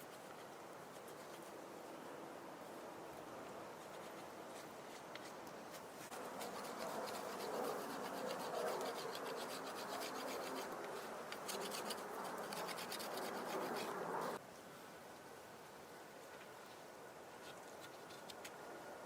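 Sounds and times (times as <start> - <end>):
scratching and rubbing: 3.8 - 14.4.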